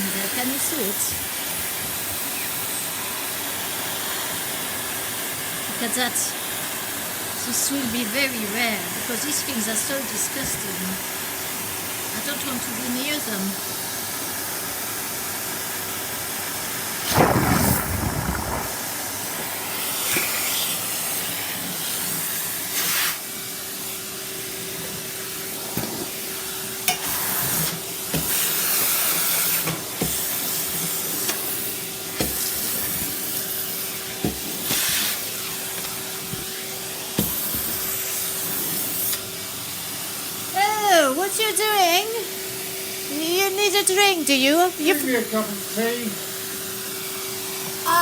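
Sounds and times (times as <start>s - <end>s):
vacuum cleaner running: 0.0s - 48.0s
debris knocking in vacuum nozzle: 17.1s - 19.0s.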